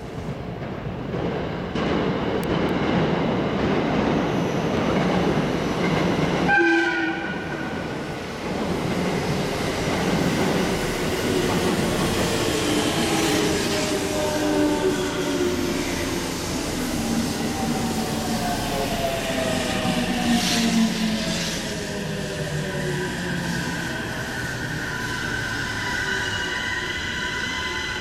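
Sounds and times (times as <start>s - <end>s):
train wheels rumbling on rails: 0.0s - 28.0s
train horn blast: 6.5s - 7.8s.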